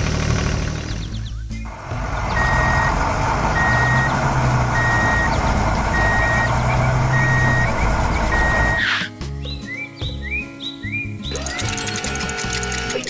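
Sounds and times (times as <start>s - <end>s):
engine running: 0.0s - 8.9s, 11.3s - 13.0s
reversing alarm beeping: 2.3s - 8.9s.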